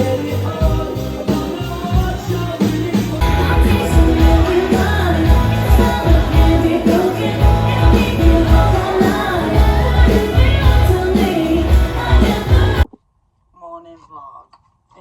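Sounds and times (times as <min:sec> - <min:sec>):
live pop-rock band: 0:00.0 - 0:12.8
person singing: 0:00.0 - 0:12.9
heavy bass beat: 0:01.8 - 0:12.9.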